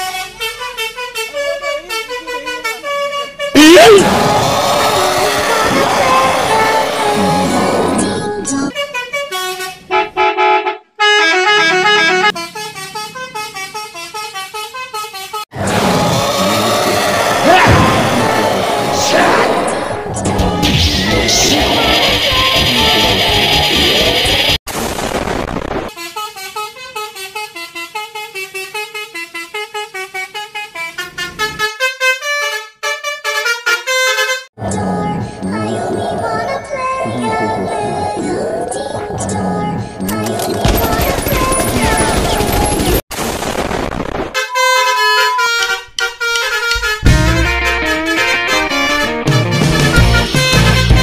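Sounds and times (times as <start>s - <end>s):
bus musical horn tune: 0.0s - 3.9s, 8.2s - 15.5s, 26.0s - 34.6s, 44.4s - 51.0s.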